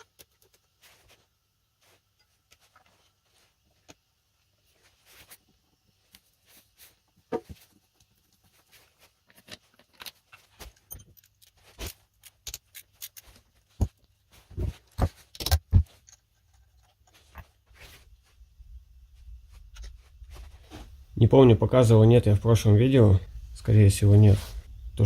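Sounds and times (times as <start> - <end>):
tools and metal parts clicking: 9.3 - 13.6.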